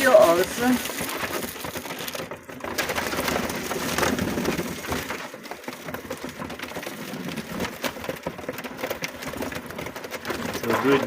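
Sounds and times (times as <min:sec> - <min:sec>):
duck bills pecking and crunching: 0:00.0 - 0:11.0.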